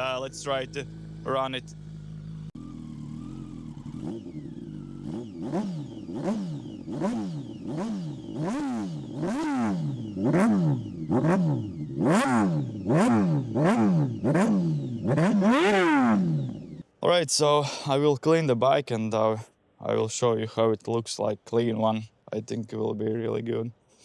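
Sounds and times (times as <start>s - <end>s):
motorcycle engine revving: 0.0s - 16.8s.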